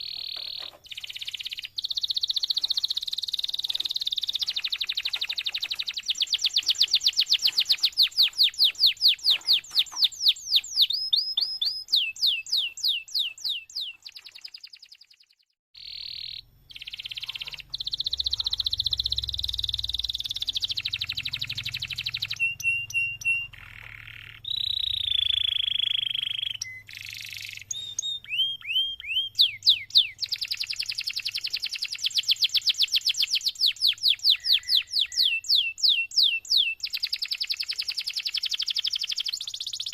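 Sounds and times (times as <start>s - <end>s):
canary singing trills: 0.0s - 39.9s
faint low hum: 15.8s - 29.5s.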